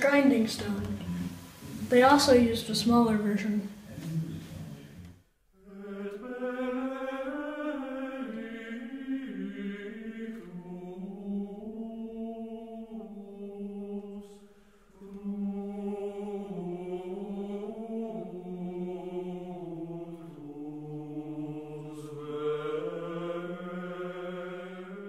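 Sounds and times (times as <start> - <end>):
slow sung chant: 5.5 - 25.0.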